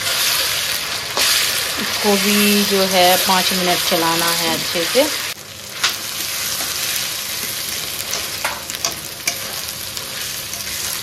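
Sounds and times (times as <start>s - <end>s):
onions sizzling in hot oil: 0.0s - 11.0s
spoon scraping and knocking pan: 5.8s - 11.0s.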